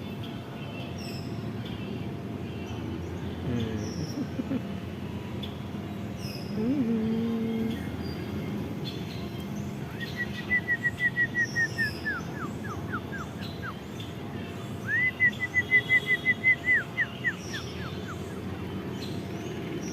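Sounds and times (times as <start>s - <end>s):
bird singing whistled notes: 7.6s - 14.1s, 14.8s - 18.4s.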